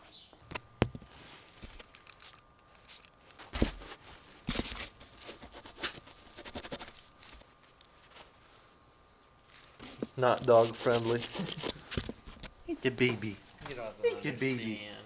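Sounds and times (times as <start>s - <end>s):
rustling: 1.0s - 8.7s.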